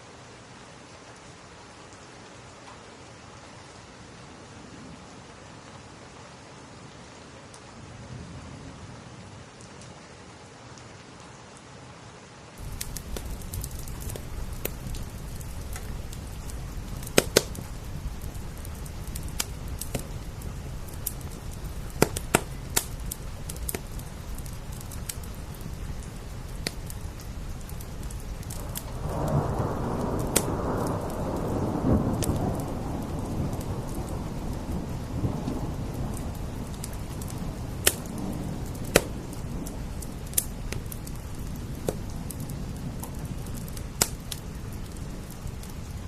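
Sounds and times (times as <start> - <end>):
steady rain: 0.0 - 46.0
thunder rolling: 12.6 - 46.0
wood fire crackling and popping: 12.6 - 46.0.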